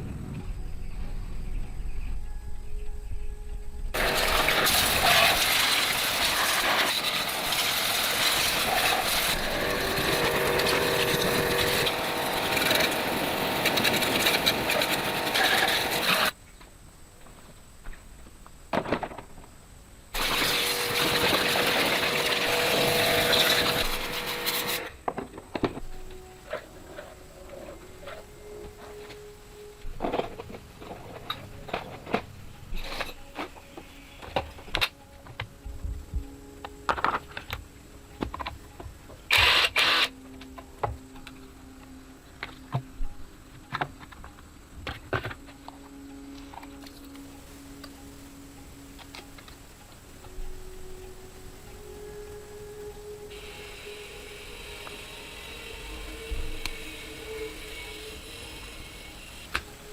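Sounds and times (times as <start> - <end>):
short loud hissing blasts: 4.0 - 16.3, 20.2 - 24.9
power tool motor whining: 4.0 - 16.4, 20.2 - 25.0, 39.3 - 40.3, 53.0 - 59.9
faint steady hum: 40.1 - 59.9.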